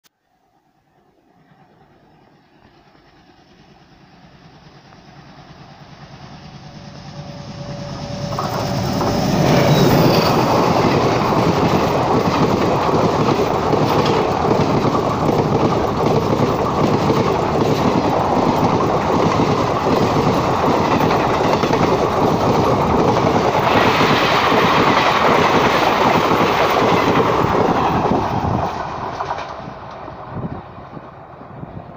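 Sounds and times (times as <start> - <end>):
passenger train passing: 0.5 - 31.9
wheels clattering on rails: 8.1 - 31.0.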